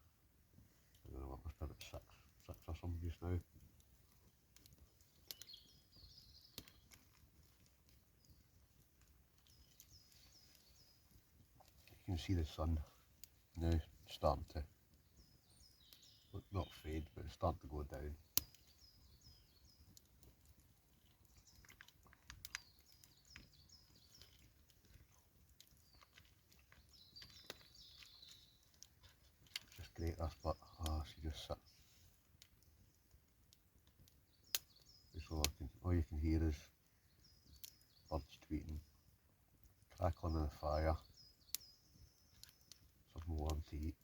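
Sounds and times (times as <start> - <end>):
campfire crackling: 0.0 - 44.0
faint birdsong: 0.0 - 44.0
songbird chirping: 0.0 - 44.0
faint chewing: 18.3 - 30.0.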